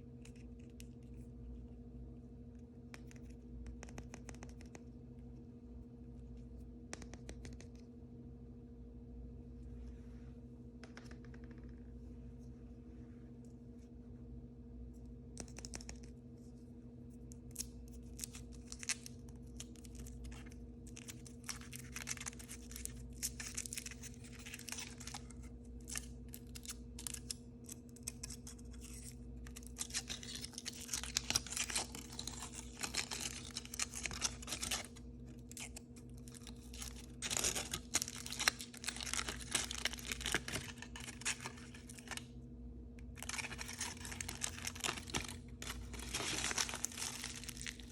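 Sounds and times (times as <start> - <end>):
faint steady hum: 0.0 - 47.9
plastic wrappers crinkling and tearing: 17.5 - 42.3, 43.1 - 47.9.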